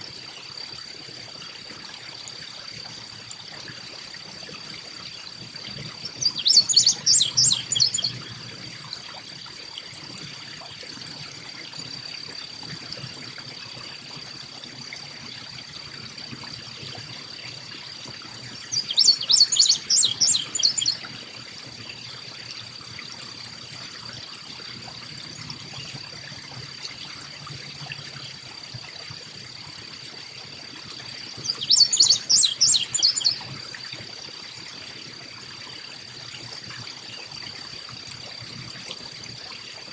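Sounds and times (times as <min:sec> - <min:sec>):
songbird calling: 0:06.0 - 0:08.3, 0:18.7 - 0:21.0, 0:31.4 - 0:33.5.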